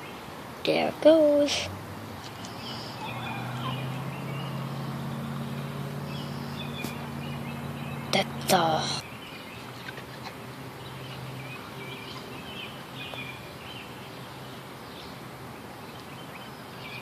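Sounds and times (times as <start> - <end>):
faint bird chirps: 2.4 - 8.4.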